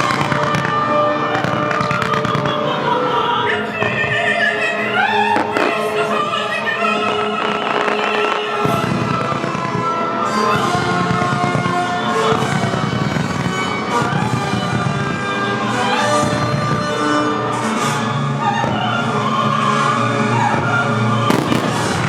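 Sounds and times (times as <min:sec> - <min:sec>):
fireworks bursting: 0:00.0 - 0:22.0
music with singing voice: 0:00.0 - 0:22.0
sharp firework bang: 0:05.3 - 0:06.2, 0:06.9 - 0:09.9, 0:21.3 - 0:22.0.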